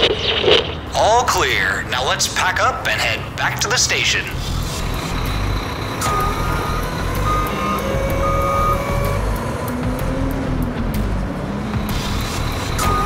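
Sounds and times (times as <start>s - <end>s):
truck engine running: 0.0s - 13.0s
reversing alarm beeping: 3.5s - 10.4s, 11.8s - 13.0s.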